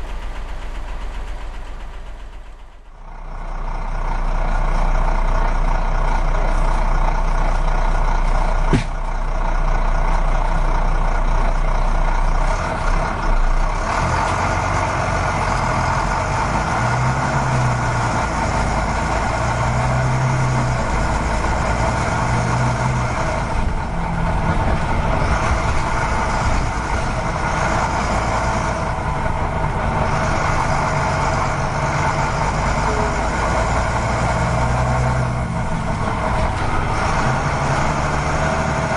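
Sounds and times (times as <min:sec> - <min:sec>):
model truck engine: 0:00.0 - 0:38.9.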